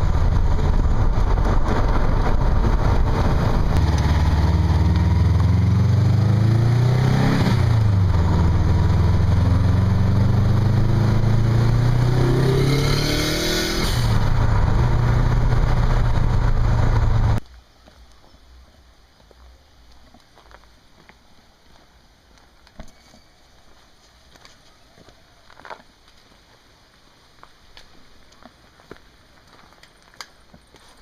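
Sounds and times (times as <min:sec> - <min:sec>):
vehicle engine running: 0:00.0 - 0:17.4
wind noise: 0:00.0 - 0:17.4.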